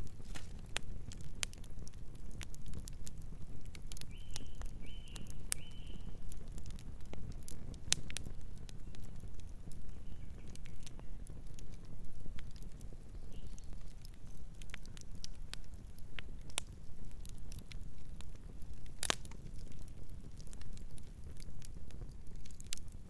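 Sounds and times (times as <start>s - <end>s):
low rumble of burning: 0.0s - 23.0s
wood fire crackling and popping: 0.0s - 23.0s
distant bird calling: 4.1s - 6.1s.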